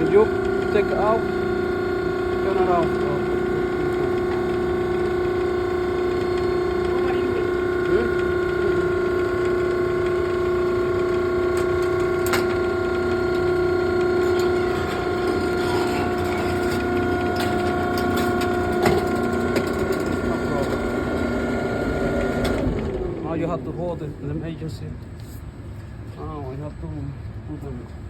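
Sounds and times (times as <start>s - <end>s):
baler motor humming: 0.0s - 24.5s.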